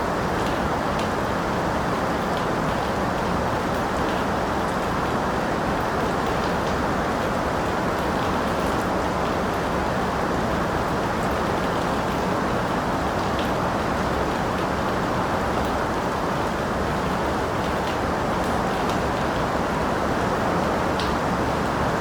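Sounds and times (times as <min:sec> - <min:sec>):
steady rain: 0:00.0 - 0:22.0
rain drops ticking: 0:20.6 - 0:22.0.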